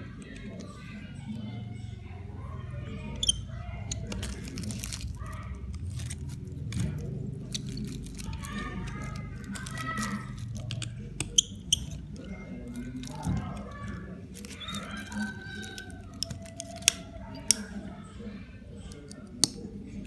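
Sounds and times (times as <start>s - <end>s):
faint background voices: 0.0s - 20.0s
tools clicking and tapping: 3.2s - 17.8s, 18.9s - 19.6s.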